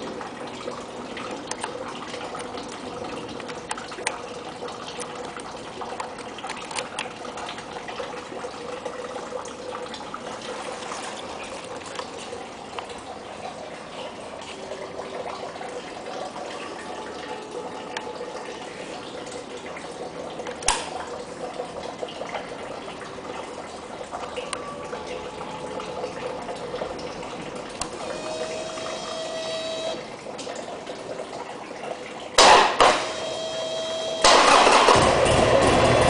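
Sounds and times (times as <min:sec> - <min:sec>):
motorcycle starter: 0:34.2 - 0:36.0
motorcycle engine running: 0:34.9 - 0:36.0.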